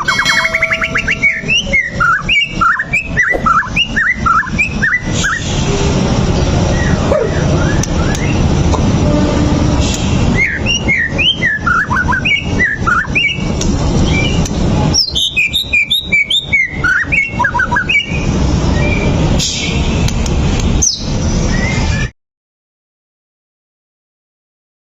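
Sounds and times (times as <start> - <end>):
bird singing whistled notes: 0.0 - 5.4, 6.7 - 8.4, 10.3 - 19.2, 20.8 - 22.1
steady low background noise: 0.0 - 21.7.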